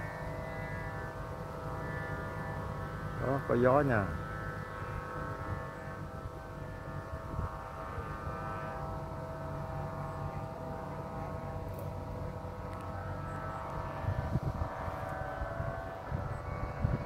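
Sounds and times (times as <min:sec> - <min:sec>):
steady drone of held pitches: 0:00.0 - 0:17.0
wind buffeting microphone: 0:04.2 - 0:09.4, 0:11.9 - 0:17.0.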